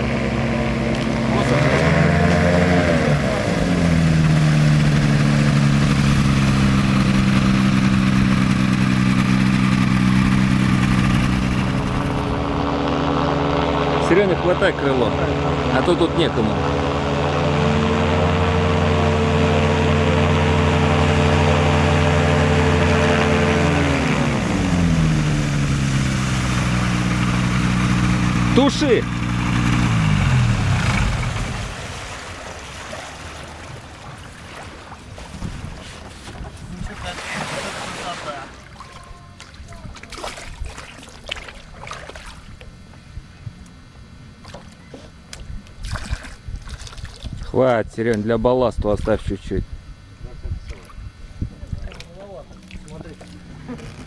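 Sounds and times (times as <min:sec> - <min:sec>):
light aircraft engine running: 0:00.0 - 0:49.2, 0:50.2 - 0:54.0
water sloshing against hull: 0:31.0 - 0:43.2, 0:44.3 - 0:47.5, 0:50.4 - 0:54.0.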